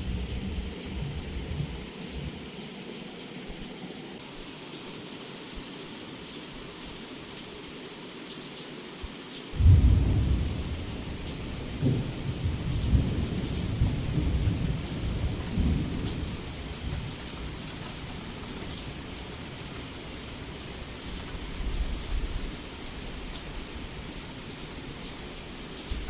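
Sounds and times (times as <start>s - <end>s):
thunder rumbling: 0.0s - 2.5s, 9.6s - 18.1s
raindrops ticking: 0.0s - 7.5s, 8.2s - 26.0s
heavy rain: 0.0s - 26.0s.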